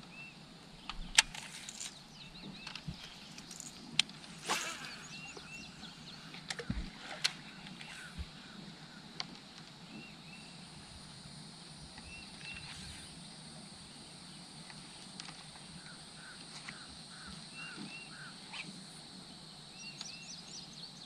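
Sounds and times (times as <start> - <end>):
steady low hum: 0.0 - 21.0
birds calling: 0.3 - 9.2, 15.8 - 18.8.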